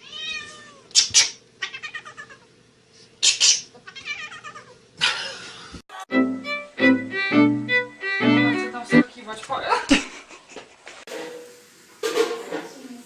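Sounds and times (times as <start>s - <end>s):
cat meowing: 0.0s - 0.9s, 1.6s - 2.5s, 3.8s - 4.8s.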